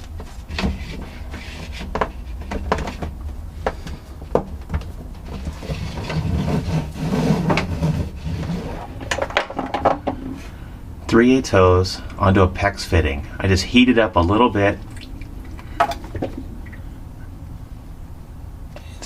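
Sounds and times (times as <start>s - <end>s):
pipes rubbing and scraping: 0.0s - 10.7s, 14.3s - 17.7s
low steady hum: 0.0s - 19.0s
pipes knocking and clicking: 14.9s - 16.9s.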